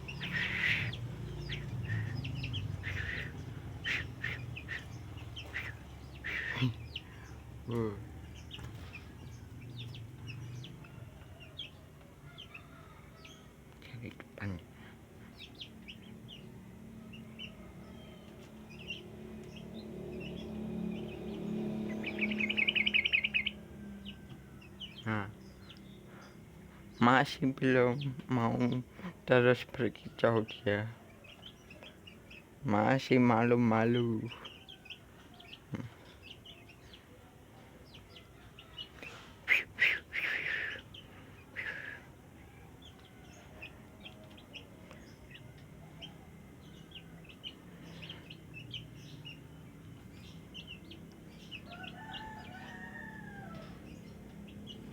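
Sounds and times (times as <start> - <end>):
bulbul chirping: 0.0 - 7.3, 21.9 - 23.6
steady low hum: 0.0 - 11.2
bird chirping calls: 0.0 - 37.2, 37.8 - 54.9.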